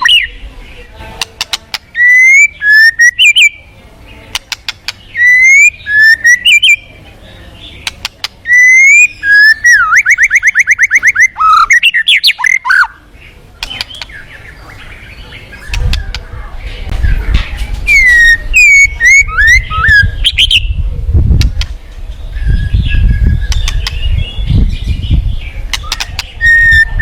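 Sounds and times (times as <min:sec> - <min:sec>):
bird sharp clicks: 0:01.2 - 0:03.5, 0:04.3 - 0:05.7, 0:07.8 - 0:09.0, 0:13.6 - 0:14.2, 0:23.4 - 0:24.1, 0:25.7 - 0:26.5
fast bird trill: 0:01.2 - 0:03.6, 0:04.4 - 0:07.0, 0:07.7 - 0:16.2, 0:17.9 - 0:20.8, 0:22.4 - 0:27.0.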